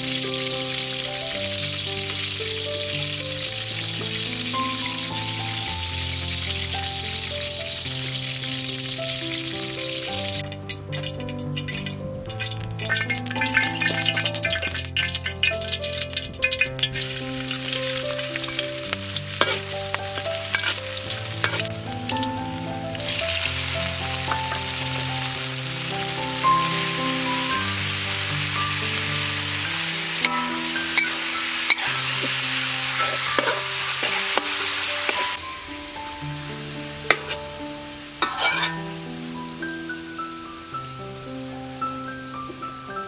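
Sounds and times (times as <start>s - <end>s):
food sizzling in hot oil: 0.0s - 43.0s
soft background music: 0.0s - 43.0s
spatula knocking against wok: 37.1s - 37.4s.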